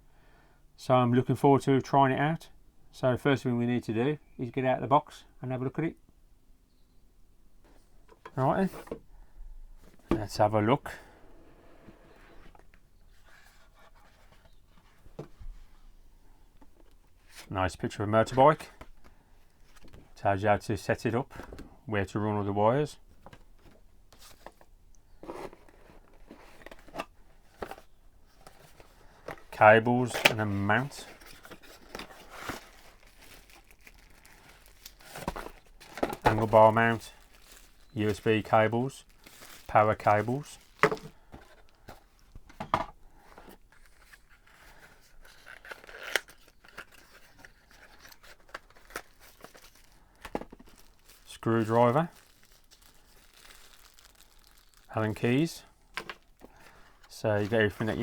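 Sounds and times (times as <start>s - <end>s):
packaging rustling: 23.2s - 58.0s
light packaging clicks: 31.2s - 36.4s.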